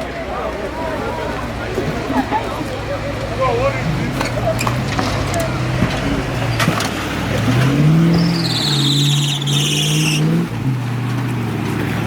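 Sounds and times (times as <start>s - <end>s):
engine revving: 0.0s - 12.0s
loud high-pitched squeal: 7.9s - 10.4s.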